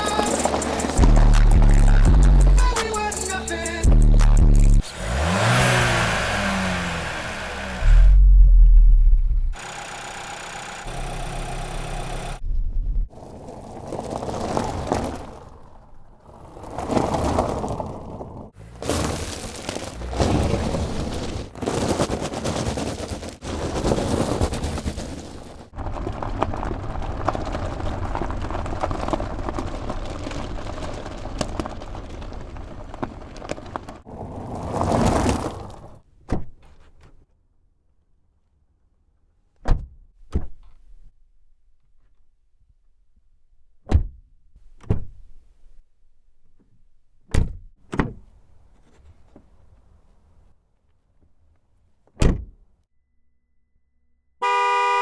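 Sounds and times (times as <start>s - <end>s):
car engine revving: 0.0s - 12.4s
car engine running steadily: 0.0s - 12.4s.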